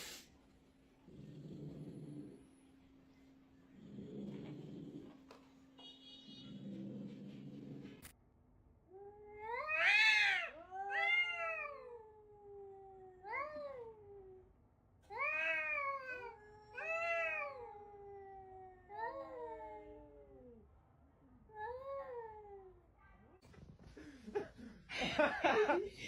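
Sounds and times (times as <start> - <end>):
cat yowling: 9.0 - 14.4, 15.1 - 20.5.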